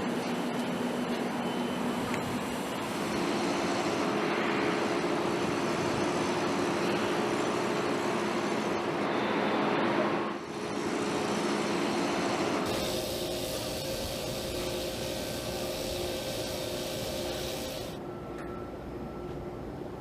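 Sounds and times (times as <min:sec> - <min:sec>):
mechanical running noise: 0:10.4 - 0:18.0.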